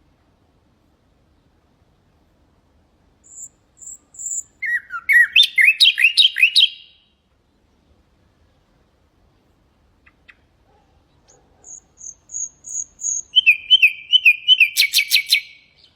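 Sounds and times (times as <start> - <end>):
nightingale singing: 3.2 - 8.7, 9.9 - 15.9.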